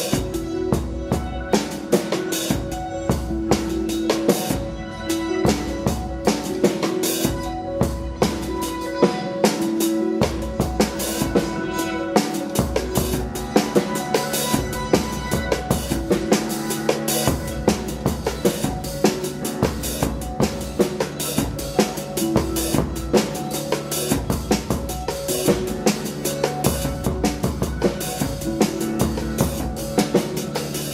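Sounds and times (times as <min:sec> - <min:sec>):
live rock band playing: 0:00.0 - 0:30.9
drum kit hitting fast: 0:05.5 - 0:30.9.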